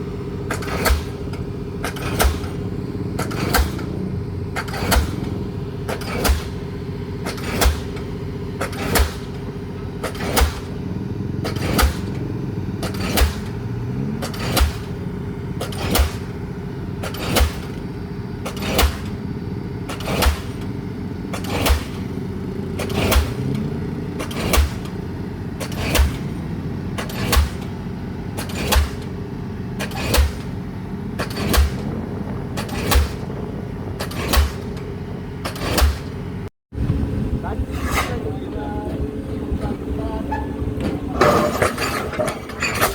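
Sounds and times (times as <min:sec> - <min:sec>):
machine engine drone: 0:00.0 - 0:42.9
pile hammer bangs: 0:00.5 - 0:04.0, 0:04.6 - 0:10.8, 0:11.4 - 0:20.7, 0:21.3 - 0:29.1, 0:29.7 - 0:36.5.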